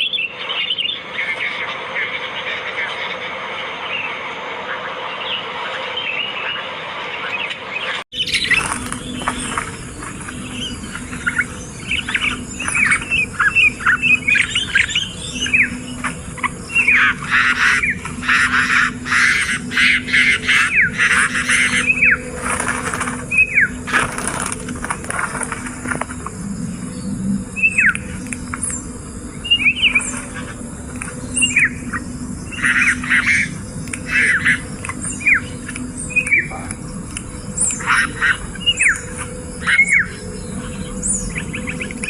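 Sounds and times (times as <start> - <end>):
sharp gliding bird calls: 0.0 - 42.0
bird hissing chorus: 8.2 - 24.5, 26.3 - 42.0.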